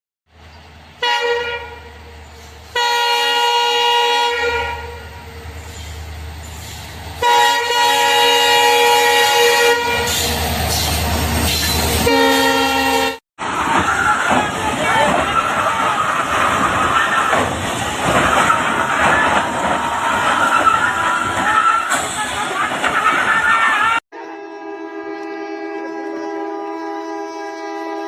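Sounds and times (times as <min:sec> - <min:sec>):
train rumbling and rushing: 0:00.3 - 0:28.0
locomotive air horn blasts: 0:01.0 - 0:02.1, 0:02.7 - 0:05.6, 0:07.2 - 0:10.5, 0:11.5 - 0:13.2, 0:24.1 - 0:28.0.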